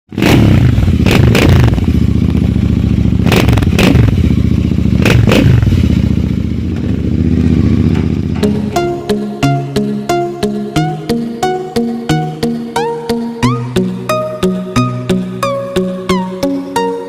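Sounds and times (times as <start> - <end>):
motorcycle engine revving: 0.1 - 10.6
music: 8.4 - 17.0.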